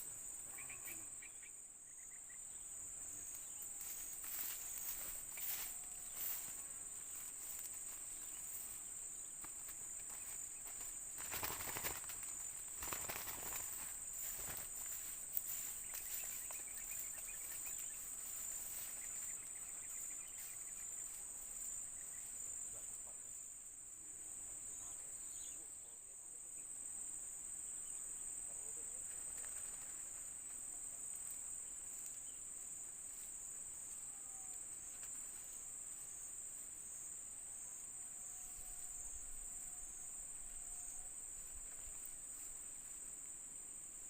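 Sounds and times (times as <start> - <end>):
insects chirring: 0.0 - 44.0.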